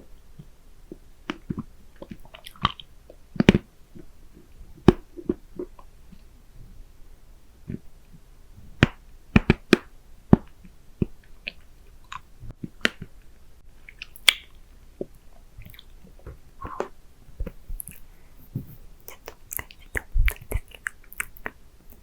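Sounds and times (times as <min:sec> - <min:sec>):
mouth licking and sucking candy: 0:13.8 - 0:14.5, 0:18.8 - 0:22.0
tongue and lip clicks: 0:13.8 - 0:14.6, 0:15.6 - 0:18.1, 0:19.0 - 0:22.0.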